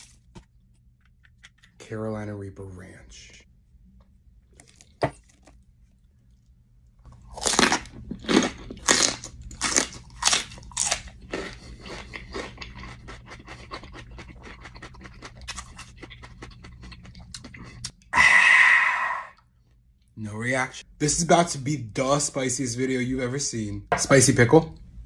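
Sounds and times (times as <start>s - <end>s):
person chewing crunchy snack: 7.0s - 18.4s.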